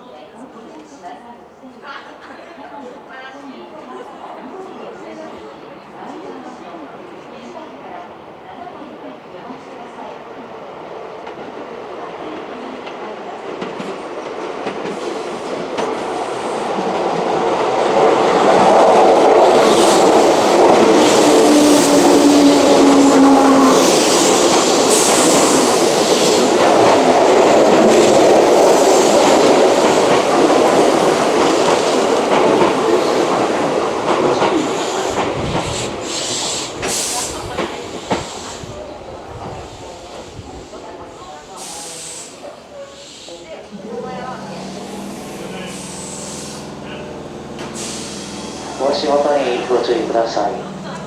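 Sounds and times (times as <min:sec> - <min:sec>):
steady train hum: 0:05.8 - 0:51.0
train wheels clattering: 0:12.2 - 0:38.8, 0:43.0 - 0:51.0.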